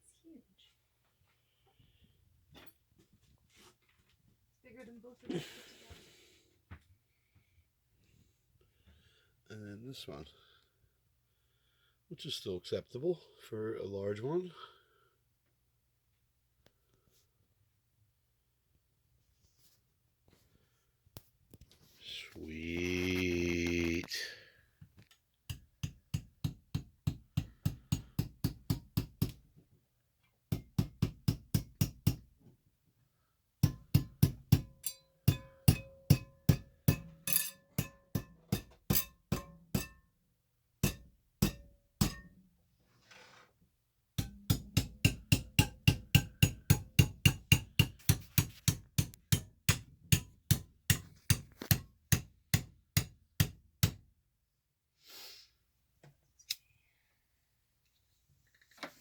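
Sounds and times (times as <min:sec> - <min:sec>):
hammer striking rock: 0:33.6 - 0:37.2, 0:37.8 - 0:40.0, 0:40.8 - 0:42.3, 0:44.2 - 0:54.0.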